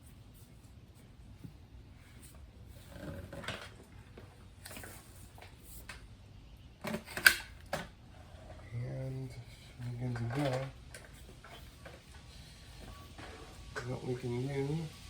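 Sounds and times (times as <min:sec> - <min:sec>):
plastic parts scraping and rattling: 0:02.8 - 0:05.4, 0:09.6 - 0:13.9.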